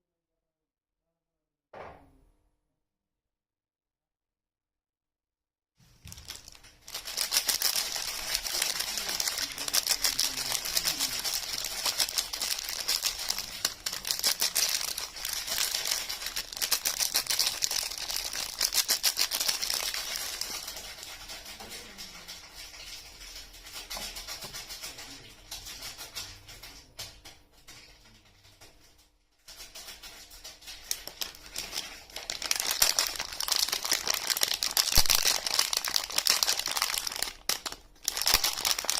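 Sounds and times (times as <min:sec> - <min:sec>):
packaging crinkling: 0:05.9 - 0:22.0, 0:29.6 - 0:38.9.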